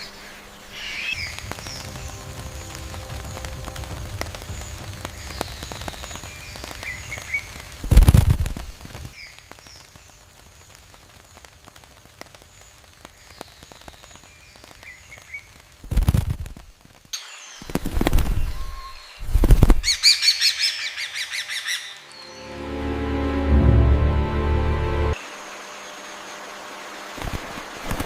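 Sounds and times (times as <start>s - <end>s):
bird wings flapping: 1.2s - 20.0s, 27.2s - 28.0s
small clicks and rustles: 7.5s - 18.4s
faint bird chirps: 17.2s - 22.4s.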